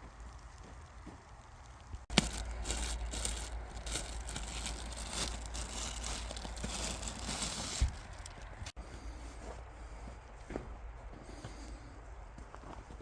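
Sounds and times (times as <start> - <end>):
rustling and crinkling handling: 0.0 - 8.8.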